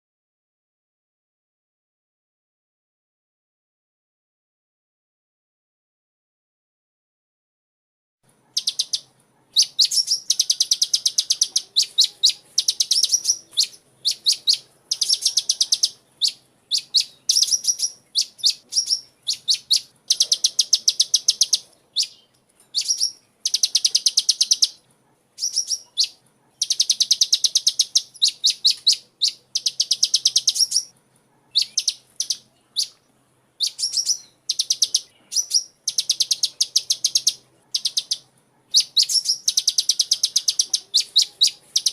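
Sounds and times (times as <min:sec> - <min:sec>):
bird singing rapid high trills: 0:08.6 - 0:24.8, 0:25.4 - 0:30.9, 0:31.5 - 0:33.0, 0:33.6 - 0:41.9.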